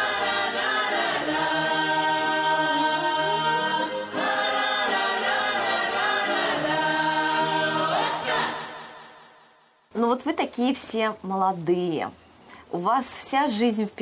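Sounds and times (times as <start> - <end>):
children singing together: 0.0 - 9.0.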